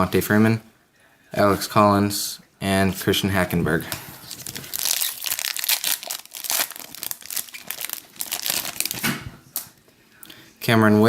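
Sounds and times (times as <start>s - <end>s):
plastic wrapper tearing and crinkling: 4.2s - 9.8s.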